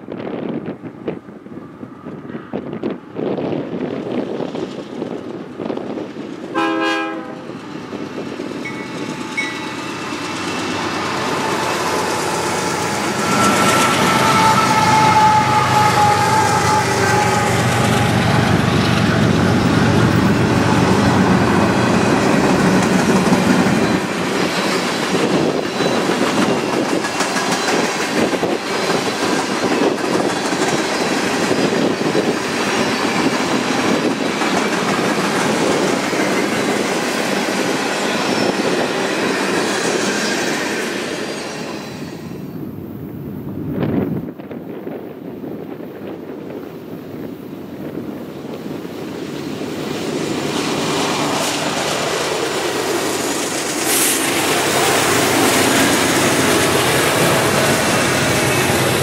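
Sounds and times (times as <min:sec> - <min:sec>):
freight train rumbling: 0:00.0 - 0:59.0
train horn: 0:06.5 - 0:07.6, 0:12.6 - 0:20.3.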